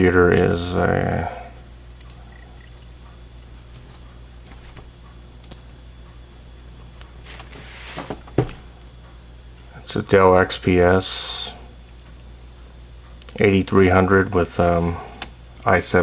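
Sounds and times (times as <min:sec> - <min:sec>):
desktop computer humming: 0:00.0 - 0:16.0
faint clicks: 0:02.0 - 0:02.2.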